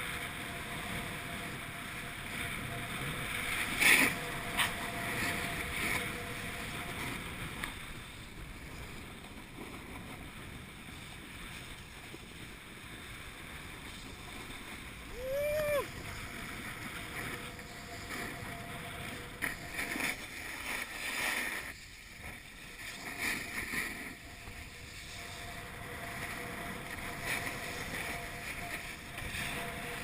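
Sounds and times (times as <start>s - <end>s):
snowboard scraping over snow: 0.0s - 30.0s.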